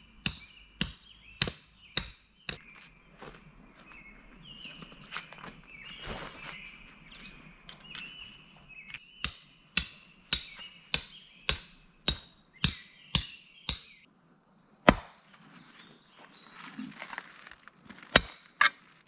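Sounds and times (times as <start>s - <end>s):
rhythmic chopping strikes: 0.1s - 2.7s, 9.0s - 14.0s.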